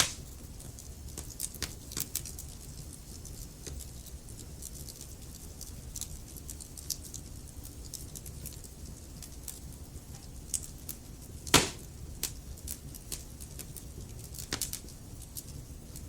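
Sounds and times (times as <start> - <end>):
loud pop from fire: 0.0 - 0.2, 11.5 - 11.9
logs crackling and snapping: 0.0 - 0.3
low steady rumble of fire: 0.0 - 16.0.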